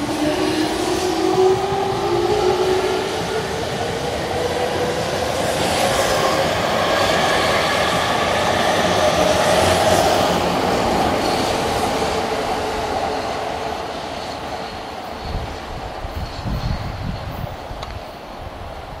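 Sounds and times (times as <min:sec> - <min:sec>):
train wheel noise on rails: 0:00.0 - 0:19.0.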